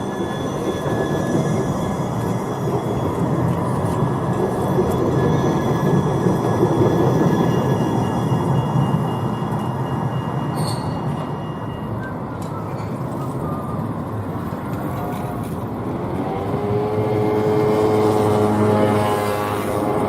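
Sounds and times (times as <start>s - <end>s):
tram motor whine: 0.0s - 20.0s
tram rumbling: 0.0s - 20.0s
thin high tones: 7.3s - 13.9s.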